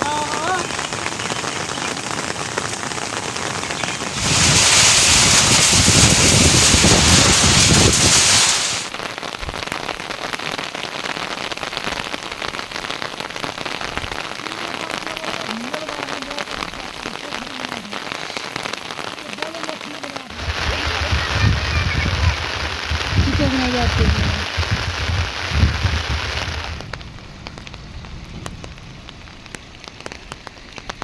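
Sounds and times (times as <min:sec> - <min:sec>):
steady rain falling: 0:00.0 - 0:31.0
loud rushing hiss: 0:04.1 - 0:09.0, 0:20.3 - 0:26.8.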